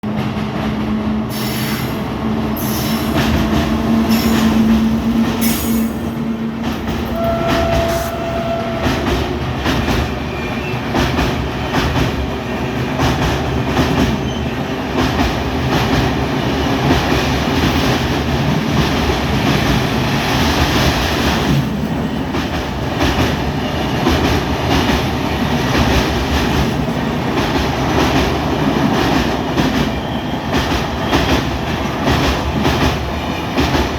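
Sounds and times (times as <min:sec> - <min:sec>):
train rumbling on track: 0:00.0 - 0:33.9
short high tone: 0:07.1 - 0:08.9.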